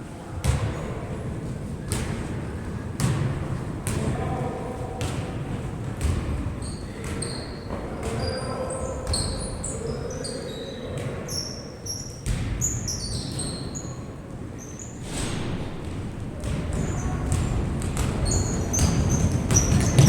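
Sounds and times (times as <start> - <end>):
basketball bouncing on a court: 0.4 - 0.9, 3.0 - 4.3, 5.0 - 8.4, 12.2 - 13.6, 16.3 - 20.0
sneaker squeaks: 6.0 - 20.0.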